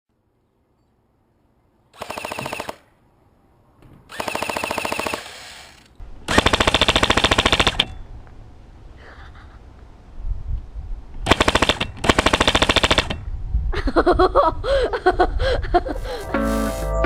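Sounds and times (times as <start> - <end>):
automatic gunfire bursts: 2.0 - 2.8, 4.2 - 5.3, 6.3 - 7.9, 11.3 - 13.1.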